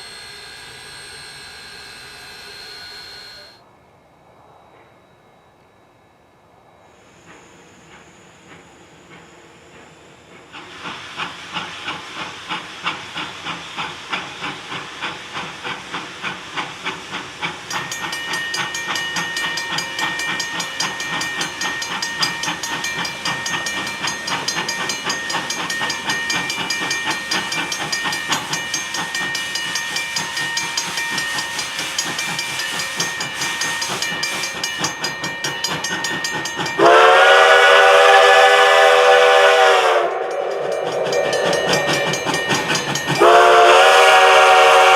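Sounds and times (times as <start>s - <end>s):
steam hissing: 0.0s - 3.6s, 6.9s - 44.9s
steam locomotive exhaust chuffing: 0.0s - 3.6s, 7.0s - 44.9s
ringing bell: 0.0s - 6.3s, 17.7s - 37.1s, 40.0s - 43.7s
steam whistle blowing: 36.8s - 44.9s.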